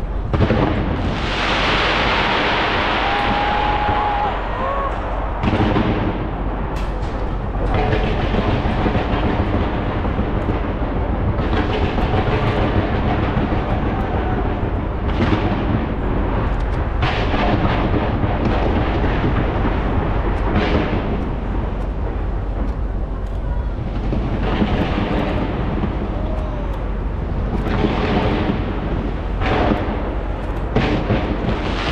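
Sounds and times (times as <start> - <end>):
fireworks banging and crackling: 0.0 - 31.9.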